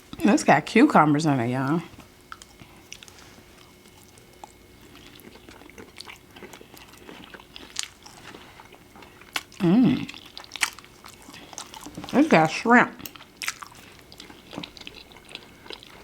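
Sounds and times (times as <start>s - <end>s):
close chewing with wet mouth clicks: 2.3s - 12.2s, 13.0s - 16.0s
person humming: 9.6s - 10.1s.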